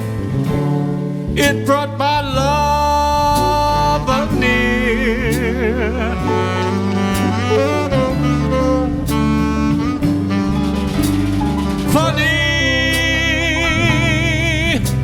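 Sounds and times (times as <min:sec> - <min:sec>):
jazz combo playing slow ballad: 0:00.0 - 0:15.0.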